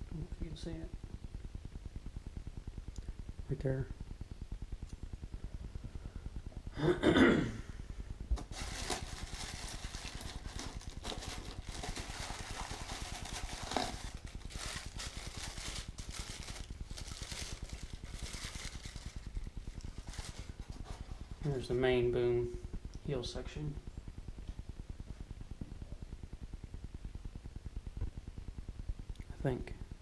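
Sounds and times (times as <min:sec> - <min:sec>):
steady low hum: 0:00.0 - 0:30.0
packing paper rustling: 0:08.4 - 0:21.2.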